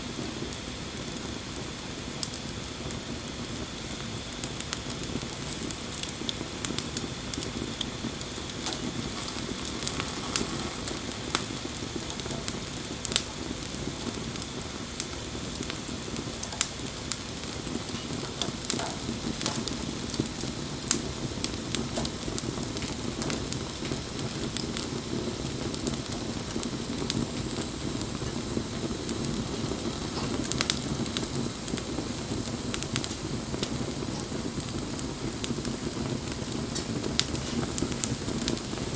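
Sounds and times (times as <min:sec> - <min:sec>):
campfire flames rushing: 0:00.0 - 0:38.9
wood crackling and popping: 0:00.1 - 0:38.9.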